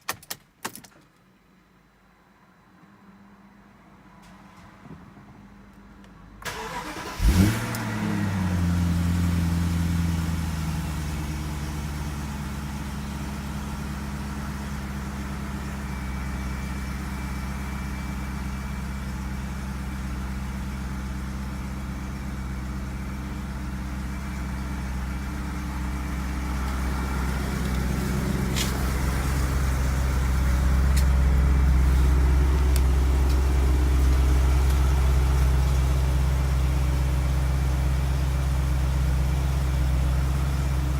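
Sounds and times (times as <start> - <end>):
car engine starting and idling: 6.4 - 40.9.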